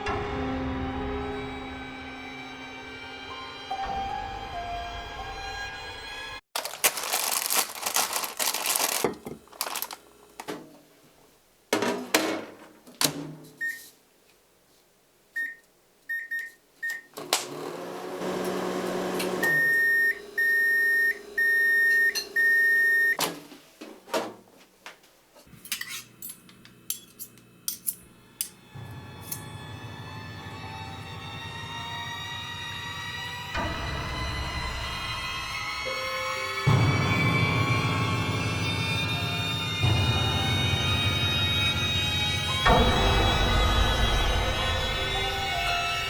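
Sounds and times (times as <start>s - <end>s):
handling noise and clicks: 6.6s - 10.6s
microwave oven humming: 17.2s - 23.2s.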